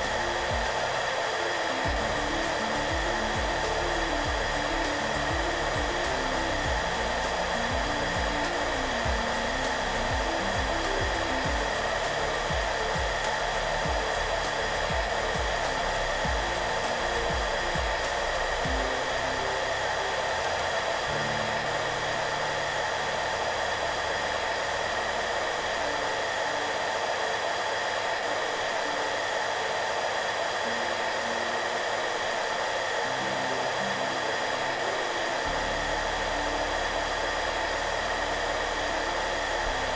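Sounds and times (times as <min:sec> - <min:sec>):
low pulsing beat: 0:00.0 - 0:01.1, 0:01.8 - 0:25.4
hairdryer running: 0:00.0 - 0:39.9
soft music: 0:00.0 - 0:39.9.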